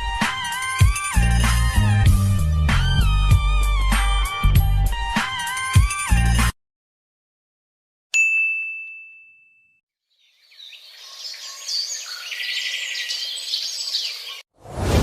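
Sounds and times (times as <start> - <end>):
bright ding: 8.2 - 9.8
birds chirping: 10.1 - 14.4
loud whoosh: 14.6 - 15.0.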